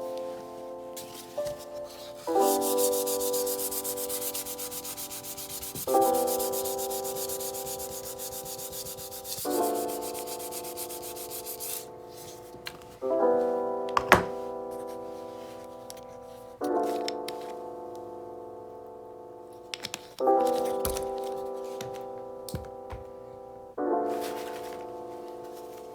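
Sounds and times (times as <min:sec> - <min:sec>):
piano chords: 0:00.0 - 0:25.9
sanding strokes on flooring: 0:01.8 - 0:11.9.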